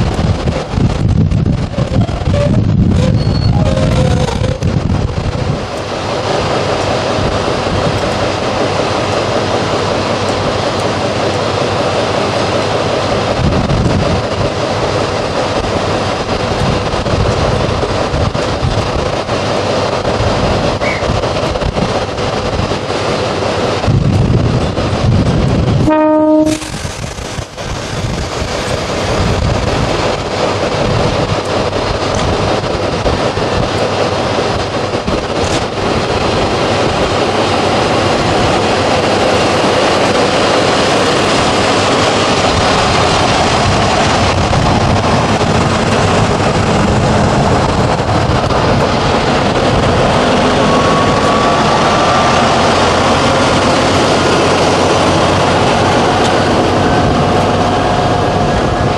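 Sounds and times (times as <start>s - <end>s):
train running past: 0.0s - 58.9s
train horn note: 25.8s - 26.8s.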